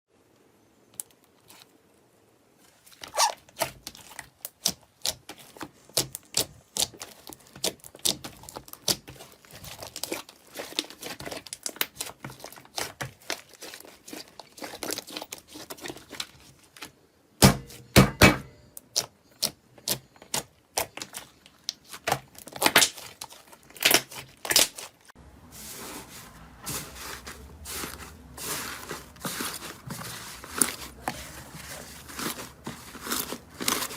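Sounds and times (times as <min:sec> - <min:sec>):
slime crackling and popping: 0:03.2 - 0:16.2, 0:20.3 - 0:25.0, 0:28.4 - 0:33.9.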